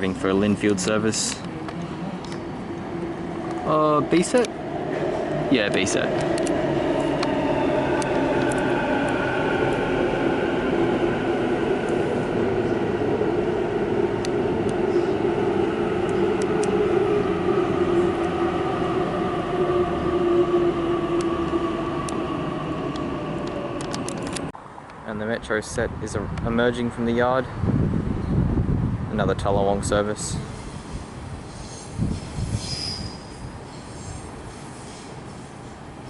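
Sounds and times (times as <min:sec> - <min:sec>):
electric train motors whining: 0:02.2 - 0:24.5.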